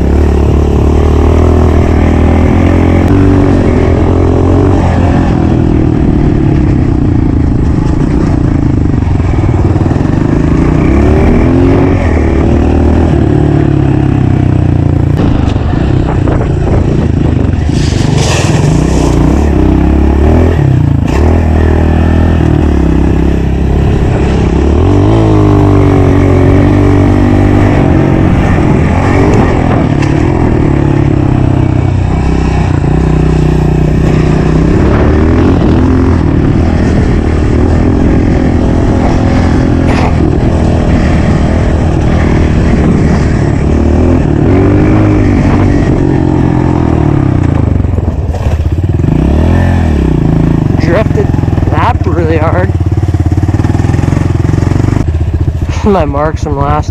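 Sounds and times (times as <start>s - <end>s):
motorbike engine revving: 0.0s - 56.9s.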